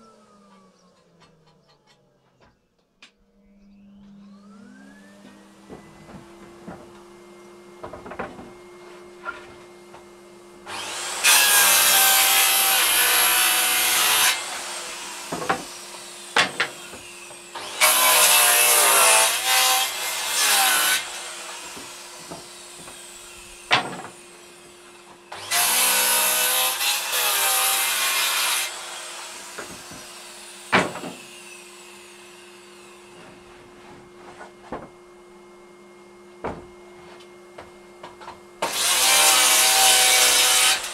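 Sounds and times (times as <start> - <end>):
vacuum cleaner running: 3.7 - 27.1, 27.7 - 39.7
circular saw cutting wood: 10.6 - 33.4, 38.6 - 40.9
sharp knocks: 23.7 - 24.2, 30.7 - 31.2.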